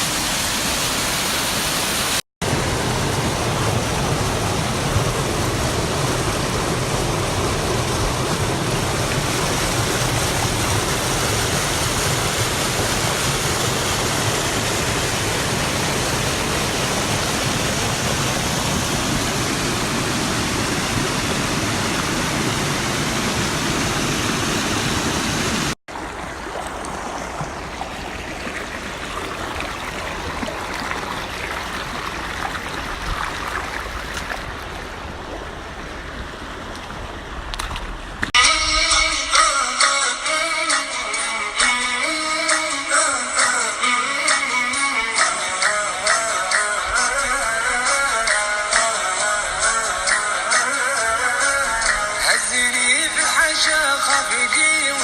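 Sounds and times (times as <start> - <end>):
running water: 0.0 - 55.0.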